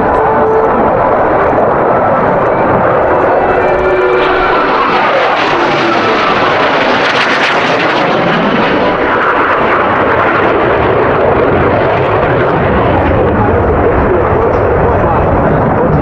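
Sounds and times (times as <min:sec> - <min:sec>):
jet aircraft flying past: 0:00.0 - 0:16.0.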